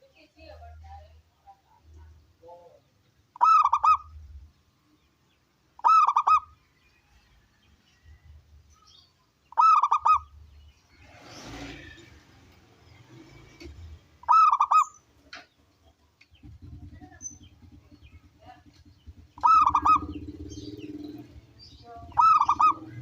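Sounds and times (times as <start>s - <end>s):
dove cooing: 3.4s - 4.2s, 5.8s - 6.6s, 9.5s - 10.3s, 14.2s - 15.0s, 16.4s - 23.0s.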